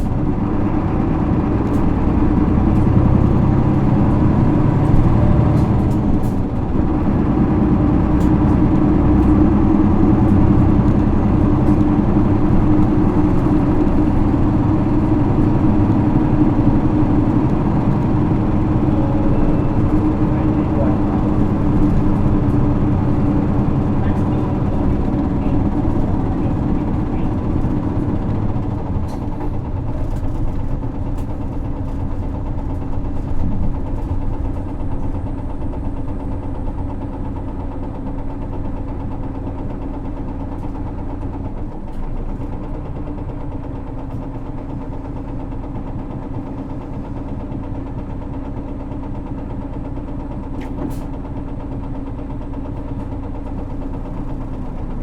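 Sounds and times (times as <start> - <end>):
road noise: 0.0 - 36.9
bus diesel engine running: 0.0 - 55.0.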